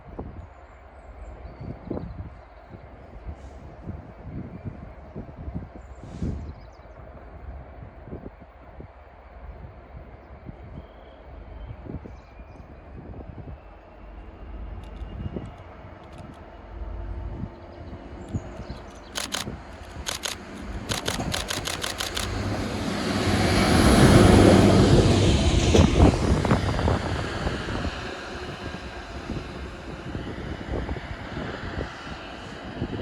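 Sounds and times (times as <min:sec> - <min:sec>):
train passing rumble: 0:02.4 - 0:33.0
camera shutter clicks: 0:18.6 - 0:22.4.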